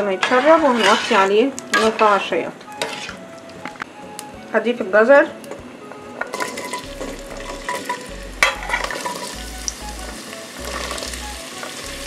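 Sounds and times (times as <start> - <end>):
utensil scraping a plate: 0.0 - 3.2
carrots sizzling in hot oil: 6.3 - 12.0.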